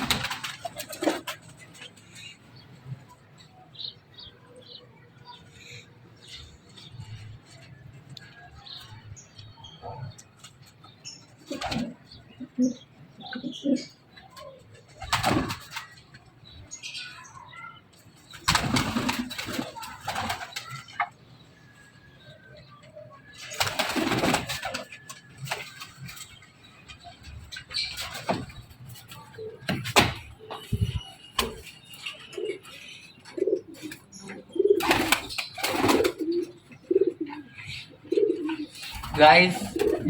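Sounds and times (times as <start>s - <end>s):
wing-flapping: 0.0s - 1.6s
pigeons cooing: 11.4s - 15.7s, 27.7s - 40.0s.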